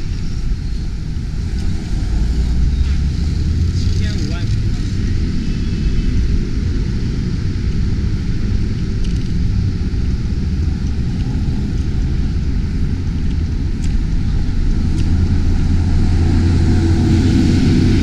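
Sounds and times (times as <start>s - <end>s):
steady low rumbling: 0.0s - 18.0s.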